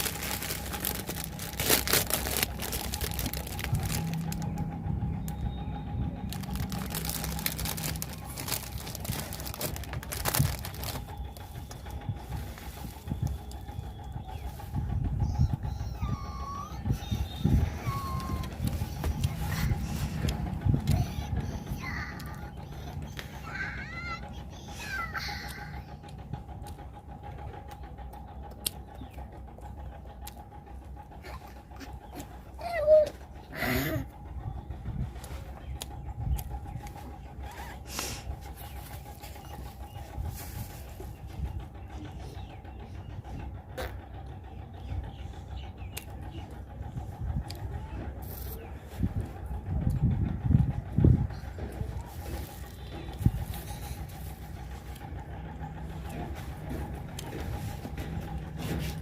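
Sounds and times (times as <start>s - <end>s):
crisp chewing crackles: 0.0s - 14.2s
sharp clicks and smacks: 27.6s - 29.5s.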